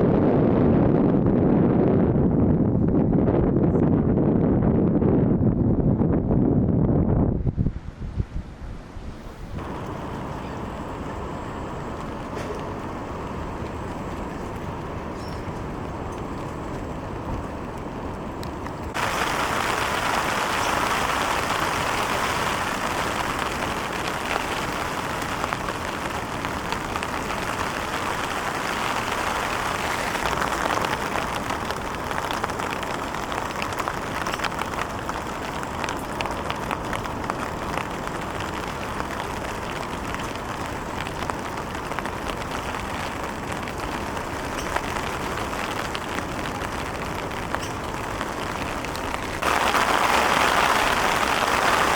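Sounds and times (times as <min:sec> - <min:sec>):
ocean surf breaking: 0:17.9 - 0:51.9.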